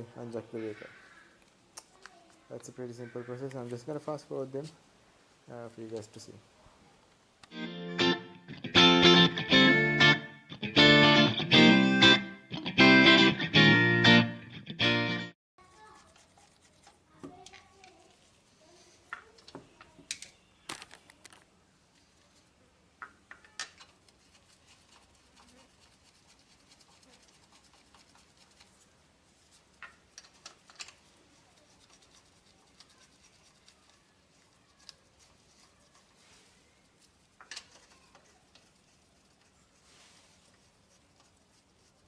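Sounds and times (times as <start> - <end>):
faint clicks and scrapes: 15.6 - 42.0.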